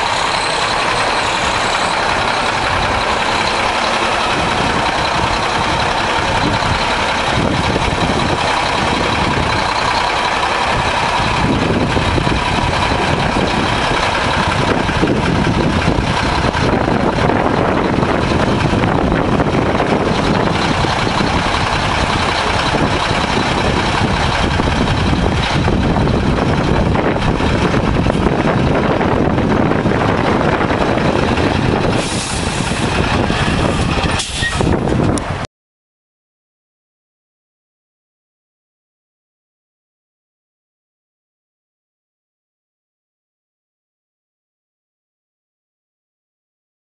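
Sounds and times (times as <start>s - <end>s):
truck diesel engine running: 0.0s - 35.5s.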